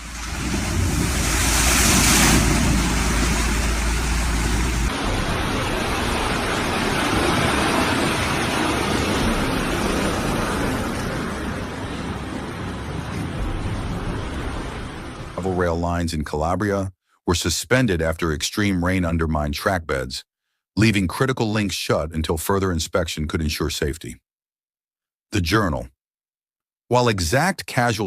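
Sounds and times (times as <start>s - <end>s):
storm wind: 0.0s - 15.4s
rushing water: 0.0s - 15.5s.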